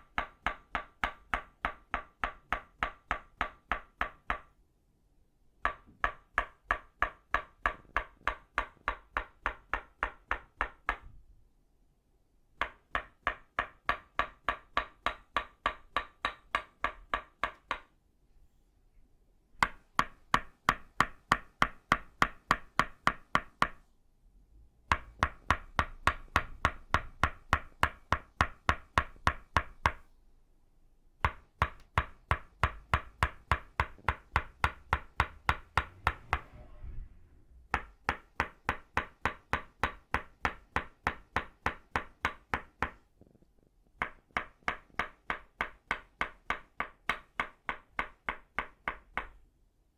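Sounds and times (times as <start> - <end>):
wooden mallet striking wooden stake: 24.9 - 30.0, 31.2 - 36.5, 37.7 - 43.0, 44.0 - 49.4.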